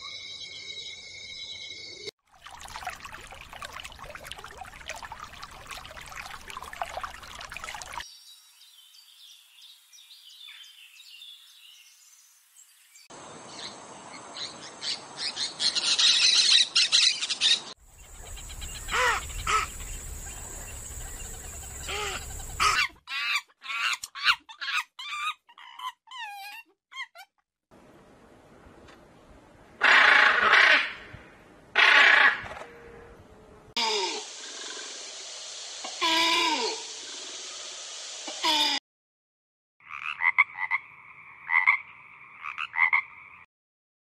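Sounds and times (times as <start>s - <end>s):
dense bird chirping: 14.4s - 22.9s
steady hiss: 33.8s - 38.8s.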